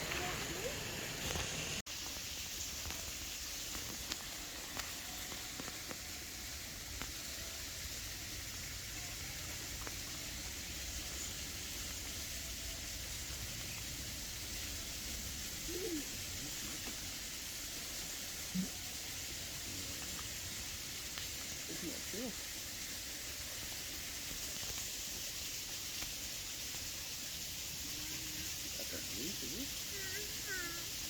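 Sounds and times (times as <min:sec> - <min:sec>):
faint distant voices: 0:00.0 - 0:01.8
outdoor background hiss: 0:00.0 - 0:31.0.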